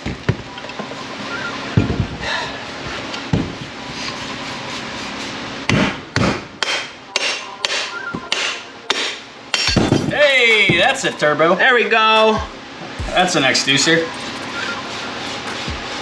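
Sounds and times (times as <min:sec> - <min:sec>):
hammer striking metal: 0:09.6 - 0:11.4, 0:12.2 - 0:16.0.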